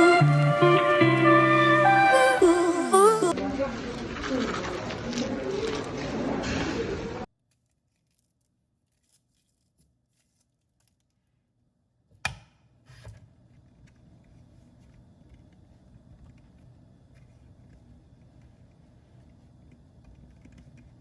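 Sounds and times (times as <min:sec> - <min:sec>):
low room noise: 0:07.1 - 0:21.0.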